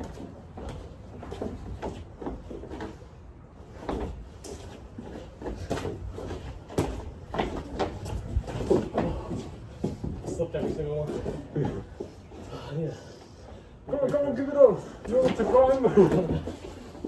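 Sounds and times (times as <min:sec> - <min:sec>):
boxing gloves thudding: 0:05.4 - 0:11.8.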